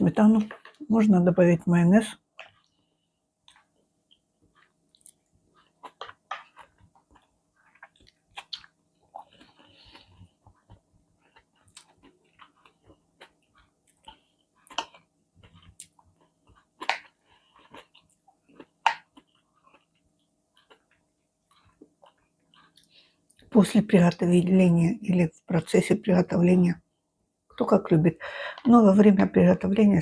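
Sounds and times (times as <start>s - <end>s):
person chewing food: 2.2s - 23.5s.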